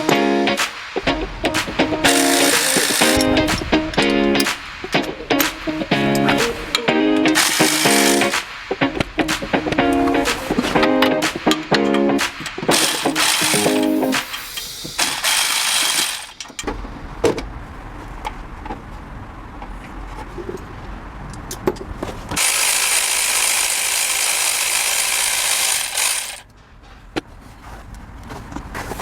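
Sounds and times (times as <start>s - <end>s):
steady hiss: 0.0s - 9.5s, 12.2s - 16.6s
metallic clicks: 1.5s - 6.5s, 7.2s - 8.4s, 11.0s - 16.7s
ratchet wrench clicking: 2.1s - 3.7s, 7.3s - 8.4s, 12.7s - 16.7s, 22.4s - 26.4s.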